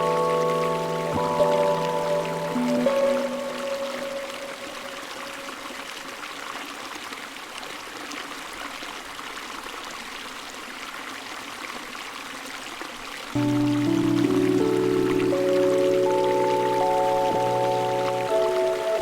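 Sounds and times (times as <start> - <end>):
music: 0.0 - 4.8, 13.4 - 19.0
running water: 0.0 - 19.0.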